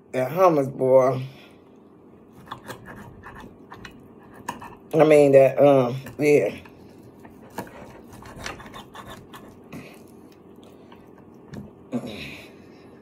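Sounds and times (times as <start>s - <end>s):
person chewing food: 2.2s - 4.9s, 6.7s - 11.9s.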